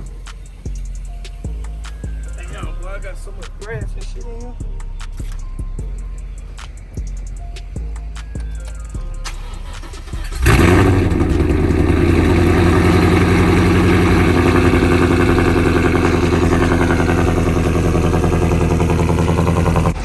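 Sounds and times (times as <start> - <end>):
car engine starting and idling: 6.4 - 20.0.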